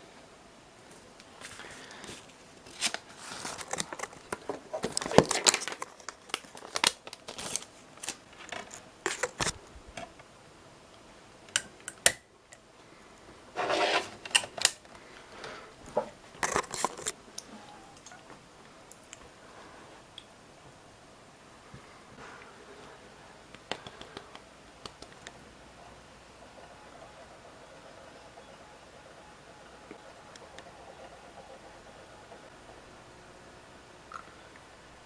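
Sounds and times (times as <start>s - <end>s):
clicks and rattles of handling: 2.0s - 10.3s, 14.1s - 17.2s.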